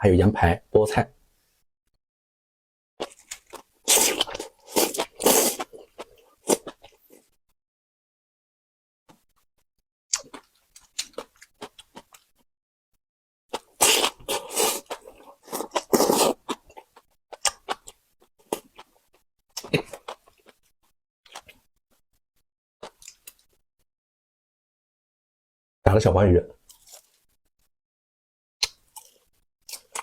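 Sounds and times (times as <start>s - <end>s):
person chewing and crunching: 3.0s - 7.2s, 10.1s - 12.4s, 13.5s - 20.7s, 26.7s - 27.2s, 28.6s - 30.0s.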